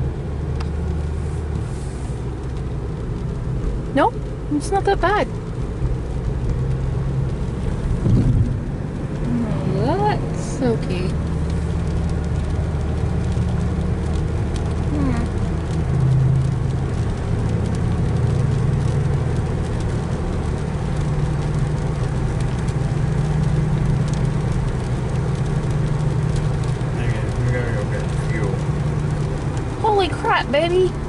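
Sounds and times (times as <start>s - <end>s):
car engine hum: 0.0s - 31.0s
tyres hissing on wet road: 0.0s - 31.0s.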